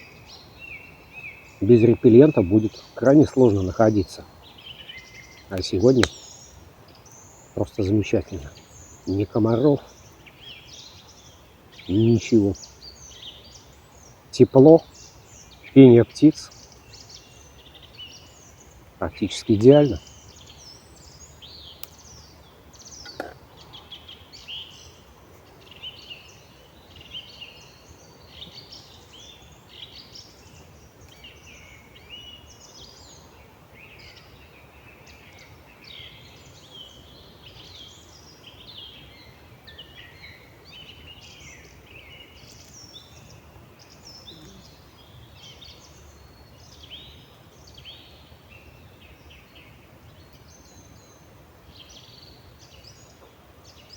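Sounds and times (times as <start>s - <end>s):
songbirds chorus: 0.0s - 53.9s
faint click: 21.8s - 22.1s.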